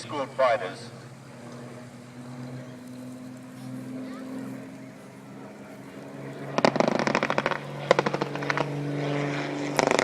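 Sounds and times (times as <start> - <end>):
piston aircraft engine drone: 0.0 - 10.0
machine-gun fire: 6.6 - 8.8, 9.8 - 10.0.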